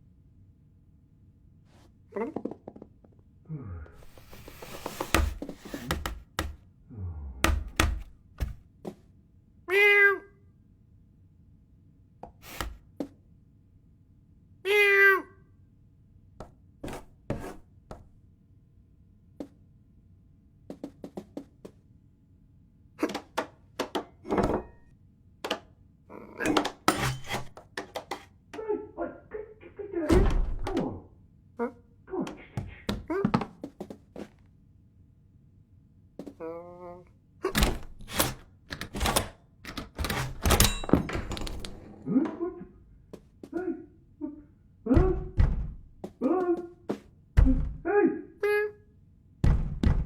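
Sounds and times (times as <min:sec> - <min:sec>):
thuds and knocks: 0:04.0 - 0:06.6, 0:07.4 - 0:09.0, 0:44.9 - 0:46.2, 0:46.9 - 0:47.9, 0:49.4 - 0:50.0.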